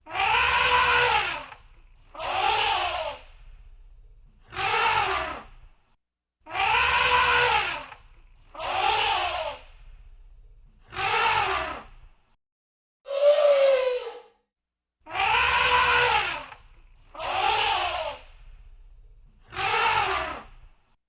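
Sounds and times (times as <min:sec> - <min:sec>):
elephant trumpeting: 0:00.1 - 0:01.6, 0:06.6 - 0:07.9, 0:15.1 - 0:16.5.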